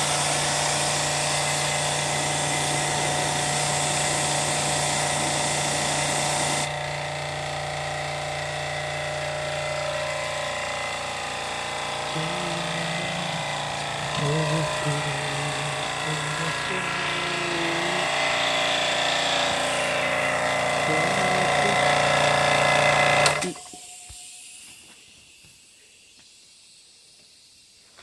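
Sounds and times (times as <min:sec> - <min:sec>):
water spray hissing: 0:00.0 - 0:06.7, 0:11.6 - 0:18.5
pressure washer motor: 0:00.0 - 0:26.4.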